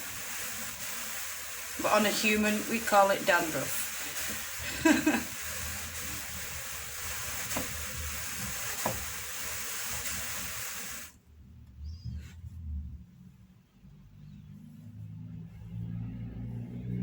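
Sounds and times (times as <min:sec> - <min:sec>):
drum carder rasping through wool: 0:00.0 - 0:11.0.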